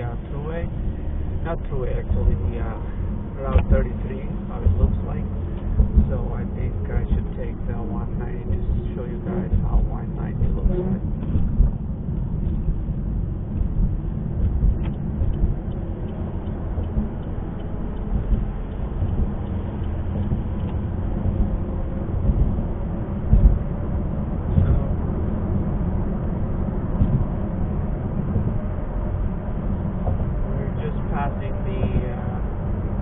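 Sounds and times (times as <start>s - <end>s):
car road and engine rumble: 0.0s - 33.0s.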